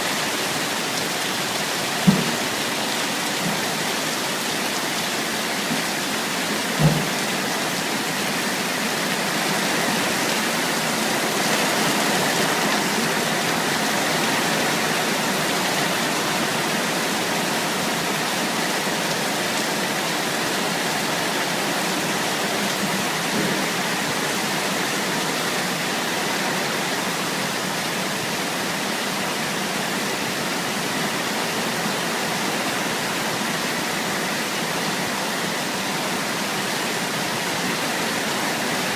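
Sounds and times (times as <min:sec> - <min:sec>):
rain falling: 0:00.0 - 0:38.9
brief thump: 0:02.0 - 0:02.4, 0:06.8 - 0:07.2.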